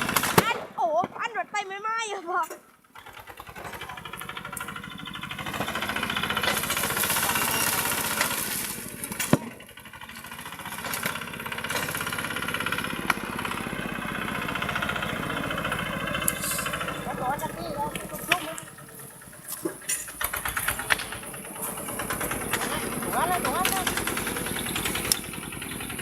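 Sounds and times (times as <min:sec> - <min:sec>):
sharp crack: 0:00.0 - 0:01.3
tractor engine pounding: 0:00.0 - 0:02.1, 0:02.7 - 0:26.0.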